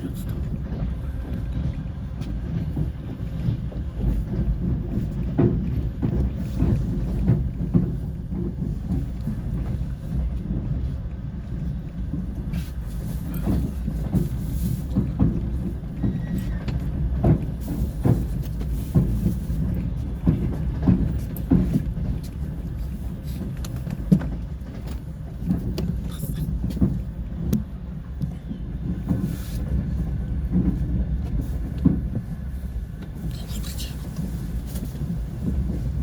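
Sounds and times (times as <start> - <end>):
train rumbling: 0.0 - 36.0.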